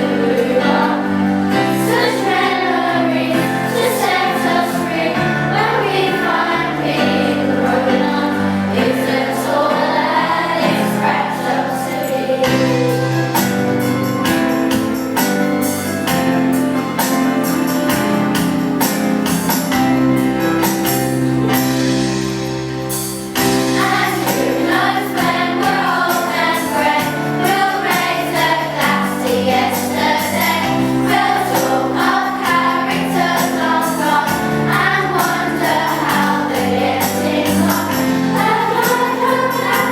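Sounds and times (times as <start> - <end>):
choir singing: 0.0 - 13.4, 23.4 - 39.9
backing music with percussive beat: 12.7 - 39.9.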